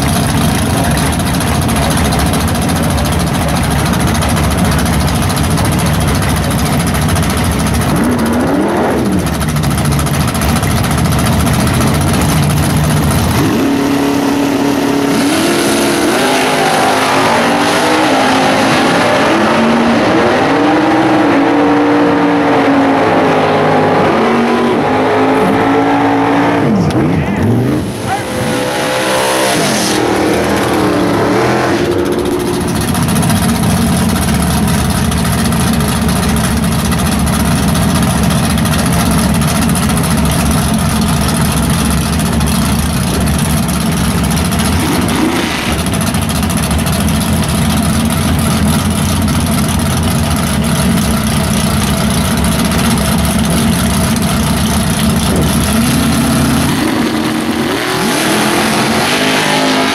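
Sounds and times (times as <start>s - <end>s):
loud engine idle: 0.0s - 18.4s, 26.6s - 59.8s
engine revving hard: 13.1s - 33.6s, 44.4s - 46.1s, 55.2s - 59.9s.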